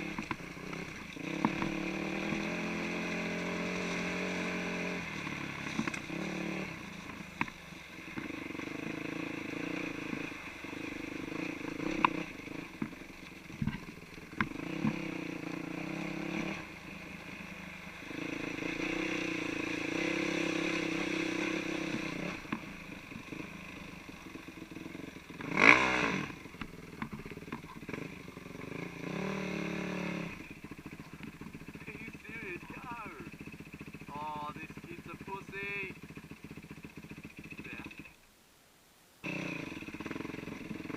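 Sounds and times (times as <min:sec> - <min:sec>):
dirt bike engine revving: 0:00.0 - 0:38.2, 0:39.2 - 0:40.9.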